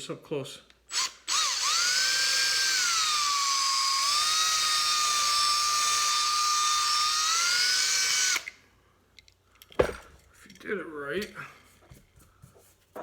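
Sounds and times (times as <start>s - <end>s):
electric drill whining: 0.9s - 8.6s.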